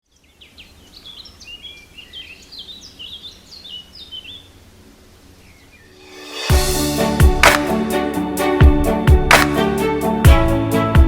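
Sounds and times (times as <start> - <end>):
songbird chirping: 0.0 - 7.8.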